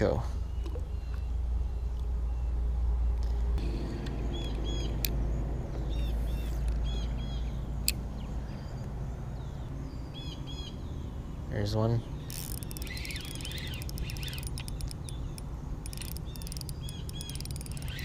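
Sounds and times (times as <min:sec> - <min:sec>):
birds chirping: 0:00.0 - 0:18.0
sharp clicks: 0:12.3 - 0:18.0.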